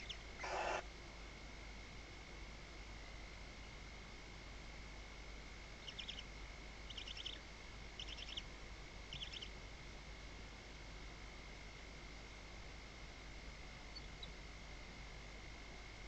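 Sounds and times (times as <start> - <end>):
owls' rapid ticking chirps: 0.0 - 0.8, 5.8 - 8.5, 9.1 - 9.6, 13.9 - 14.4.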